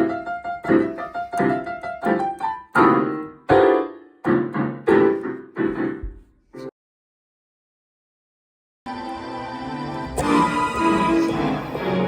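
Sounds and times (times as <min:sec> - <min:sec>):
keyboard piano chords: 0:00.0 - 0:06.7.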